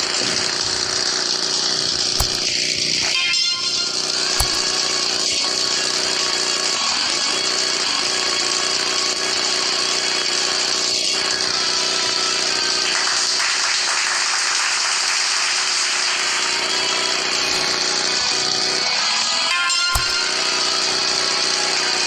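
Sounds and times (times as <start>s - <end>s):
small motorcycle engine revving high: 0.0s - 22.0s.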